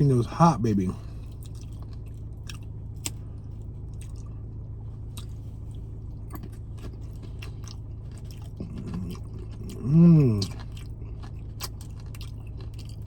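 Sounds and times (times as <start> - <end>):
steady low hum: 0.0 - 13.0
chewing food: 1.0 - 4.4, 5.0 - 13.0
crunches or mouth clicks: 8.6 - 10.6.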